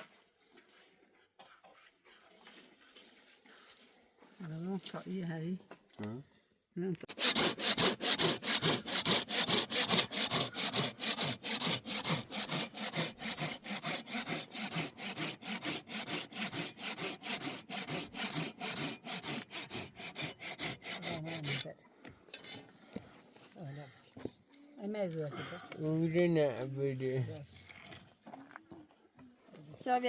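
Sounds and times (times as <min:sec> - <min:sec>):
hand saw cutting wood: 0:07.0 - 0:21.7.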